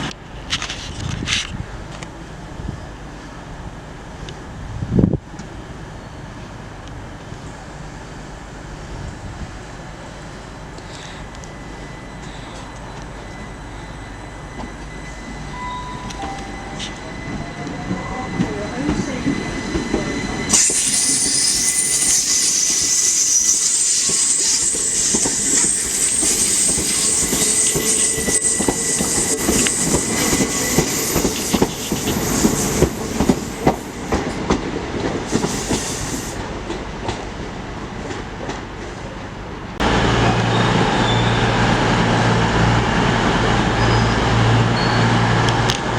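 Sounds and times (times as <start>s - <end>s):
train passing: 1.6s - 45.9s
train wheels squealing: 10.0s - 34.4s, 35.3s - 36.4s, 40.4s - 41.8s, 43.6s - 45.7s.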